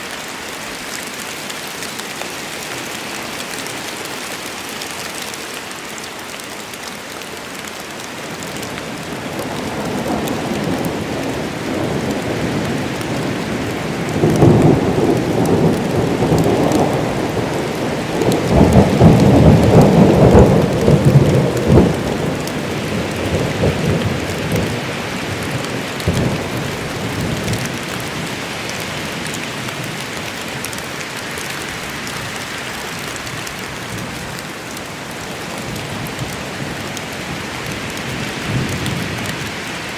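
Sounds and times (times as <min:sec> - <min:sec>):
rain falling in a forest: 0:00.0 - 0:39.9
thunder rumbling: 0:09.0 - 0:30.7, 0:35.4 - 0:39.9.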